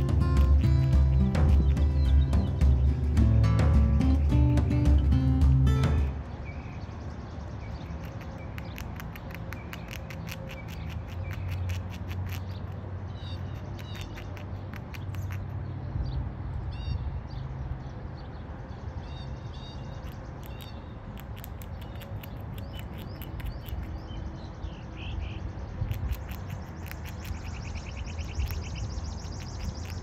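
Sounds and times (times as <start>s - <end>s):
rapid bird trill: 0.0s - 3.4s, 7.6s - 15.6s, 19.1s - 30.0s
low outdoor rumble: 0.0s - 6.4s
songbirds chirping: 0.0s - 30.0s
sharp clicks: 7.8s - 12.8s, 13.6s - 15.5s, 20.0s - 24.0s.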